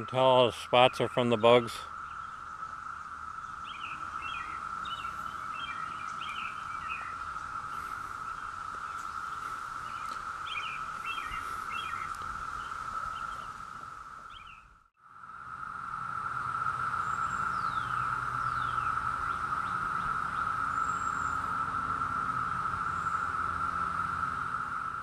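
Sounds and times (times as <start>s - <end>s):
bird chirps: 0.0s - 13.6s, 14.2s - 14.8s, 17.0s - 21.6s
cicadas droning: 0.0s - 25.0s.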